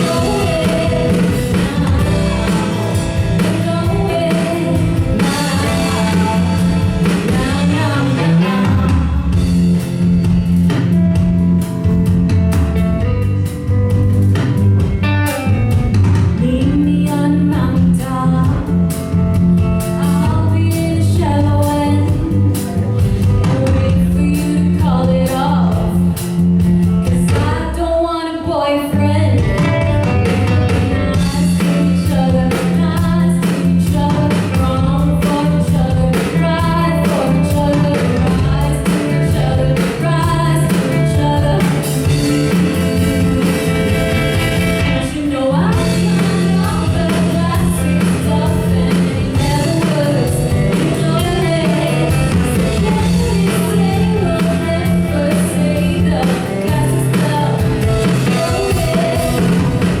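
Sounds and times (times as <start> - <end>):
person singing: 0.0 - 9.4, 27.1 - 60.0
live band playing: 0.0 - 60.0
steady bass notes: 0.0 - 60.0.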